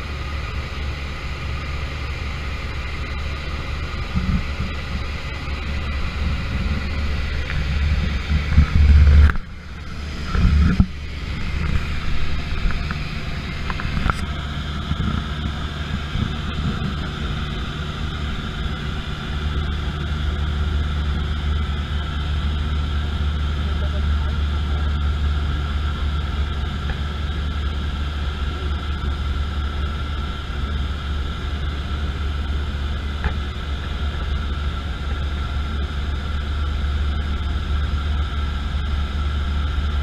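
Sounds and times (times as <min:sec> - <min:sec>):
airplane engines droning: 0:00.0 - 0:40.0.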